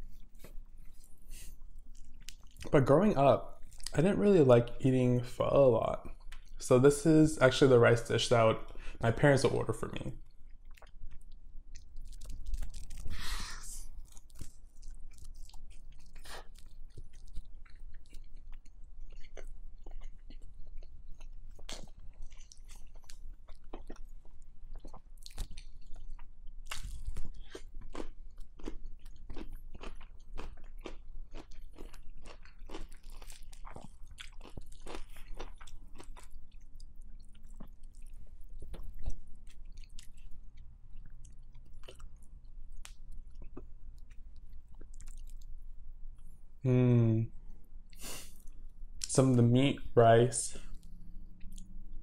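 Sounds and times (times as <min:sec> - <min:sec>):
close chewing with mouth smacks: 0:00.0 - 0:02.7, 0:06.0 - 0:06.6, 0:10.2 - 0:46.4, 0:50.6 - 0:52.0.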